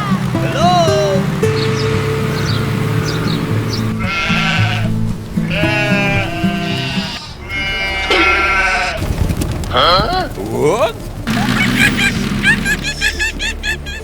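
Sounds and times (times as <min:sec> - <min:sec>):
background music with held notes: 0:00.0 - 0:07.2
sheep bleating: 0:03.8 - 0:09.0.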